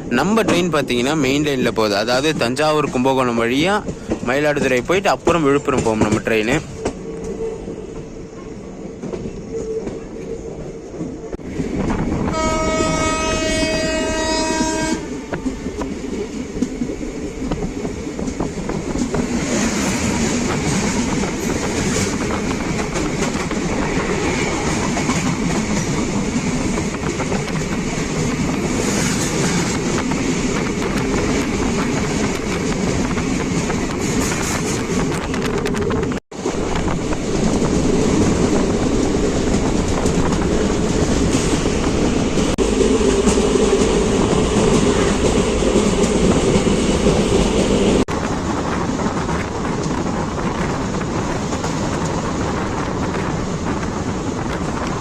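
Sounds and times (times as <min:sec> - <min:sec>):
train wheels rumbling on rails: 0:00.0 - 0:55.0
train horn: 0:12.2 - 0:15.3.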